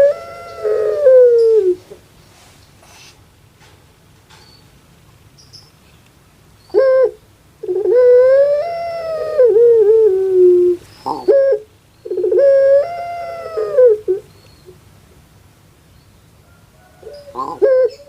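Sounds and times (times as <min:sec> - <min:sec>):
dove cooing: 0:00.0 - 0:02.0, 0:06.7 - 0:14.7, 0:16.8 - 0:18.0.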